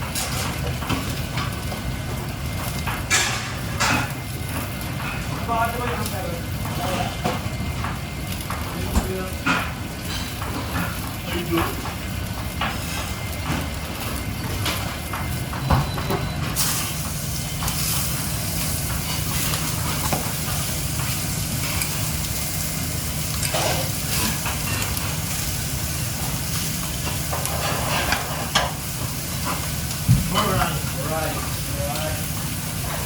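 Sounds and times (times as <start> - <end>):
food sizzling in a hot pan: 16.5 - 33.0.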